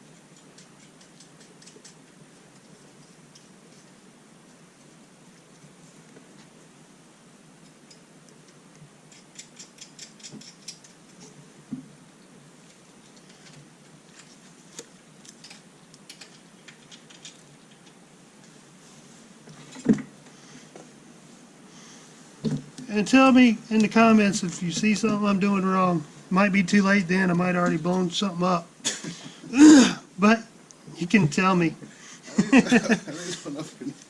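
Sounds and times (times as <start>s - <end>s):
clicks of small tools and wires: 7.6s - 11.3s, 13.2s - 18.0s.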